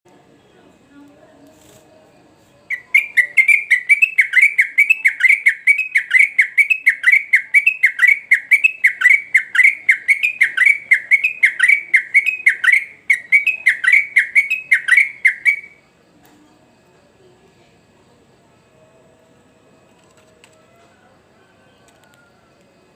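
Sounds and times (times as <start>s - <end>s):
bulbul singing chattering notes: 2.7s - 15.8s.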